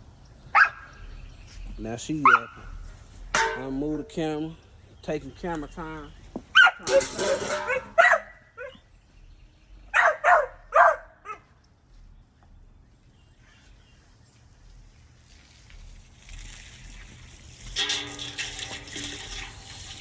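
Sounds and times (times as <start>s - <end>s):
dog barking: 0.5s - 0.9s, 2.2s - 2.7s, 6.5s - 8.8s, 9.9s - 11.4s.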